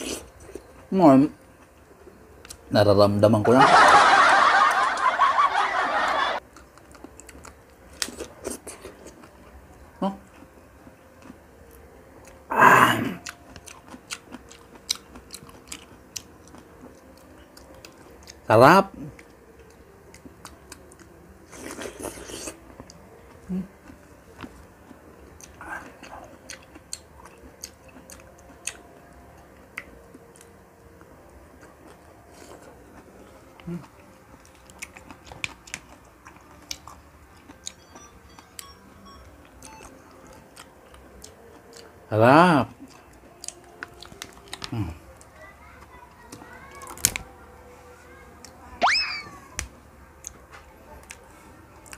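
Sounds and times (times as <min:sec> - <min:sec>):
wet chewing: 0:06.5 - 0:09.5, 0:13.0 - 0:18.4, 0:19.1 - 0:30.5, 0:31.6 - 0:38.7, 0:39.5 - 0:41.9, 0:42.7 - 0:45.3.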